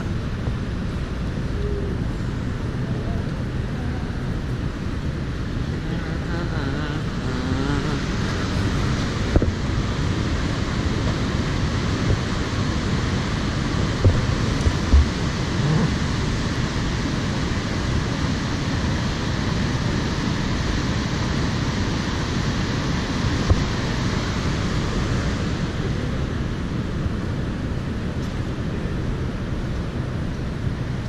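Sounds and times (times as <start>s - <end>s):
ocean surf rushing: 0.0s - 31.0s
wind on microphone: 0.0s - 31.0s.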